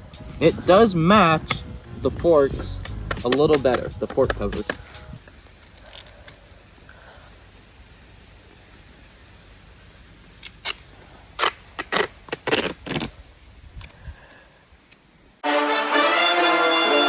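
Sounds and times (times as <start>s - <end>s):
brass music: 0.0s - 5.2s, 15.4s - 17.0s
duct tape ripping off roll: 10.4s - 13.2s.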